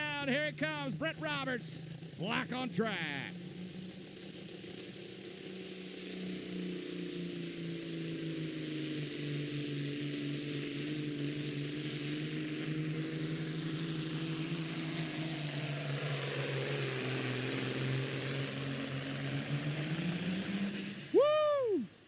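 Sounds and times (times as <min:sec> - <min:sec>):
truck diesel engine under load: 0:06.5 - 0:22.0.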